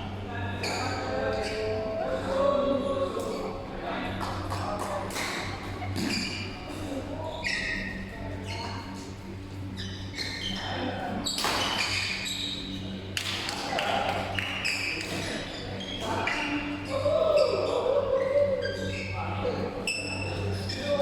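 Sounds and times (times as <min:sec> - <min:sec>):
steady low hum: 0:00.0 - 0:21.0
shoe squeaks: 0:00.5 - 0:02.0, 0:05.8 - 0:13.0, 0:14.4 - 0:21.0.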